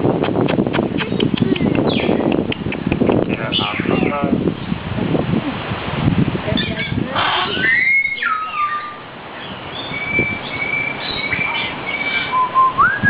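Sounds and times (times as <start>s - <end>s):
myna bird whistling: 6.6s - 13.0s.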